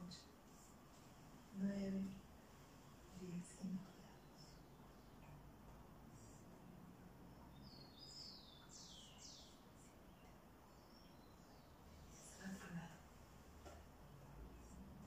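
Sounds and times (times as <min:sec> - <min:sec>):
small bird chirping: 0:07.4 - 0:12.3.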